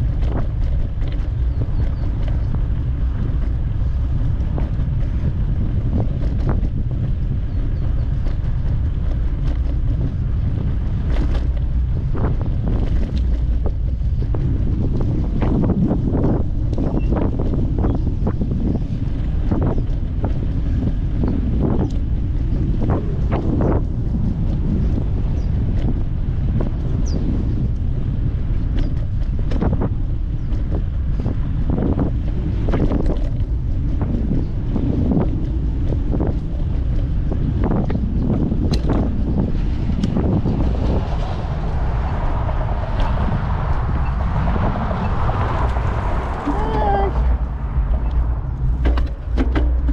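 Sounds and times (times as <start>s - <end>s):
bicycle clicks and rattles: 0.0s - 41.2s, 47.8s - 49.9s
wind buffeting microphone: 0.0s - 49.9s
knocks and rattles: 47.2s - 49.9s.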